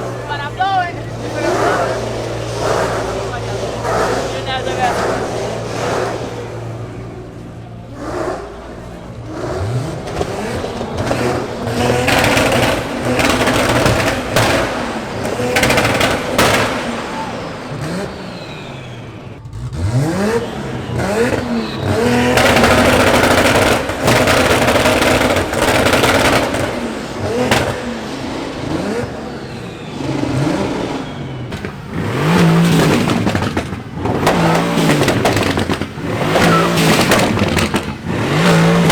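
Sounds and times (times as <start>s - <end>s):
car engines revving hard: 0.0s - 38.9s
crowd voices: 0.0s - 38.9s.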